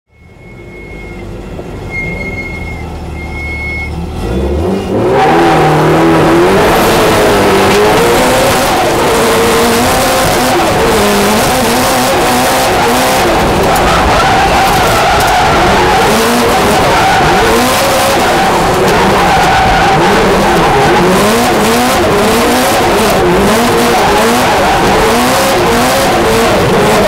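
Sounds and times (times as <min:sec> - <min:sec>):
short high beeps: 0:00.1 - 0:01.3, 0:01.9 - 0:04.0
car engine revving: 0:01.3 - 0:27.0.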